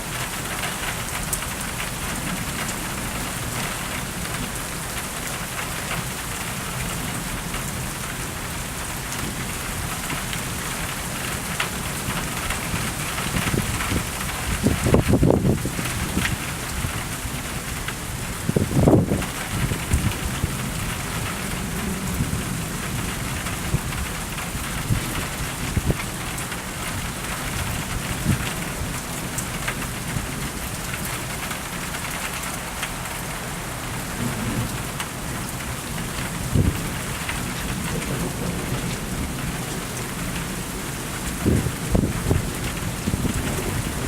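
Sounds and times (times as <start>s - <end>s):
rain falling: 0.0s - 44.0s
thunder: 37.7s - 39.7s.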